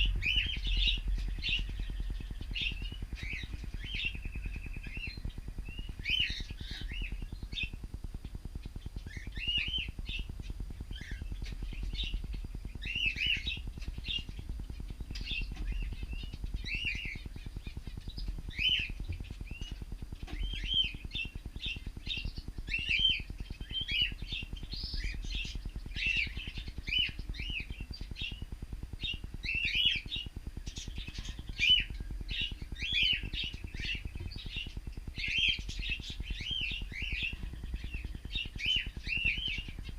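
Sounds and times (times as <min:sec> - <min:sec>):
low steady hum: 0:00.0 - 0:39.9
cockatiels chirping: 0:00.1 - 0:07.8, 0:09.0 - 0:28.4, 0:29.0 - 0:39.9.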